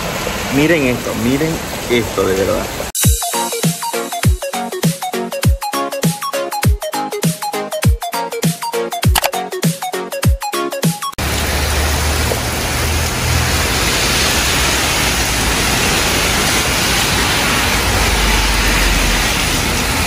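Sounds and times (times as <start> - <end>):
cars driving through water: 0.0 - 2.9, 11.2 - 20.0
torrential rain pouring: 0.0 - 3.0, 11.2 - 20.0.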